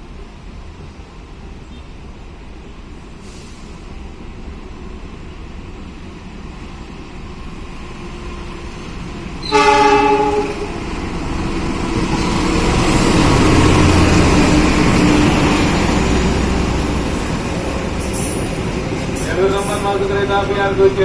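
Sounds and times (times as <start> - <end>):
train rumbling and rattling: 0.0 - 21.0
locomotive horn blast: 9.4 - 10.8.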